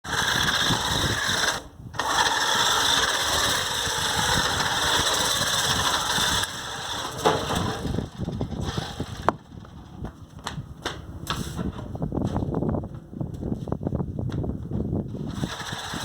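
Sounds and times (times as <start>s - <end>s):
rc car motor whining: 0.0s - 10.0s, 15.2s - 16.0s.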